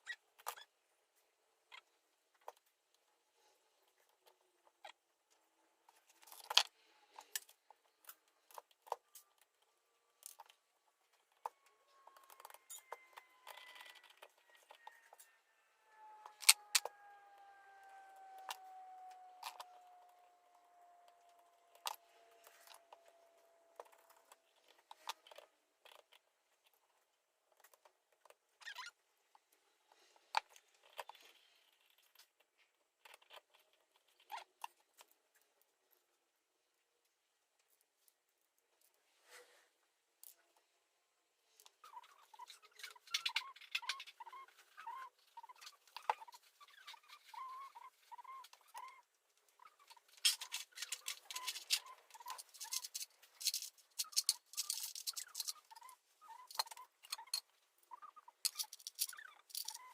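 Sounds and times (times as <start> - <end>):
metal parts clinking: 50.2 - 55.6, 58.4 - 59.9.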